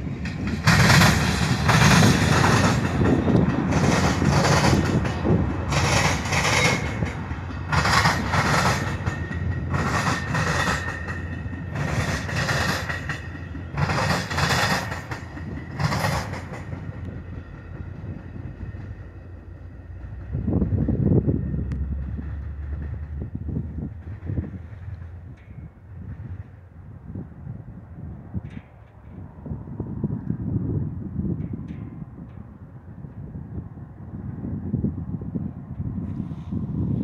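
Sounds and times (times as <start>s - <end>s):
wheels clattering over rail crossing: 0.0s - 27.3s
diesel locomotive passing: 0.0s - 37.0s
train rumble: 0.0s - 37.0s.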